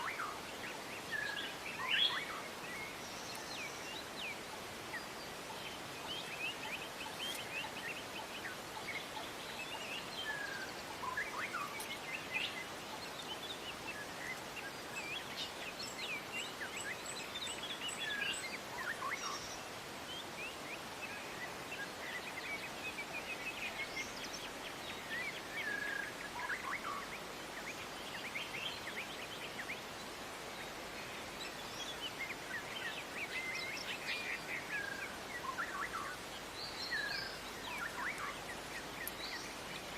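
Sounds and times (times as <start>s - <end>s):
background hiss: 0.0s - 39.9s
songbirds chirping: 0.0s - 39.9s.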